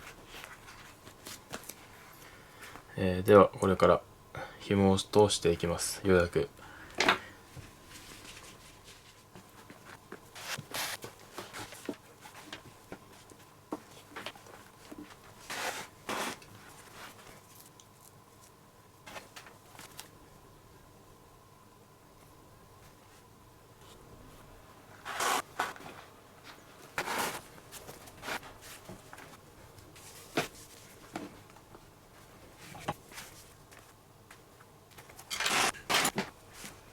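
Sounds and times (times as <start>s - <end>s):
leather lace rasping through holes: 25.0s - 25.4s, 35.3s - 36.2s.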